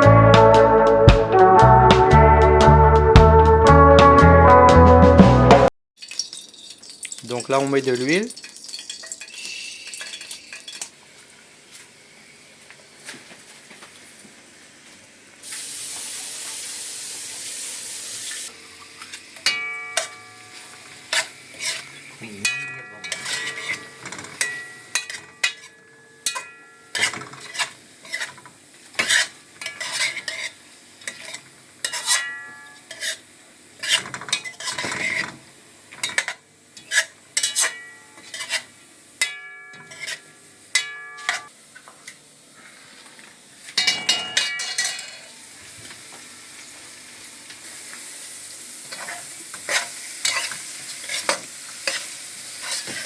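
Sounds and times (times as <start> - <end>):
oil sizzling in a pot: 6.0 - 53.0
metal spoon scraping a pot: 21.1 - 28.4, 29.0 - 32.2, 32.9 - 33.2, 33.8 - 35.4, 36.1 - 38.7, 39.8 - 40.3, 48.9 - 53.0.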